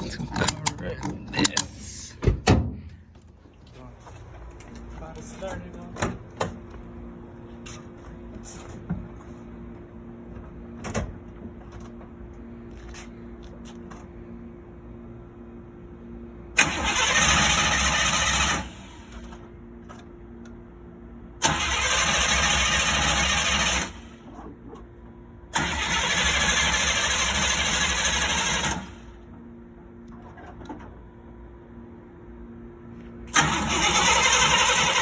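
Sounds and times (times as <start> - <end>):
starter cranking engine: 16.6 - 19.2, 21.4 - 24.0, 25.5 - 29.0, 33.3 - 35.0
sharp starter click: 33.3 - 35.0.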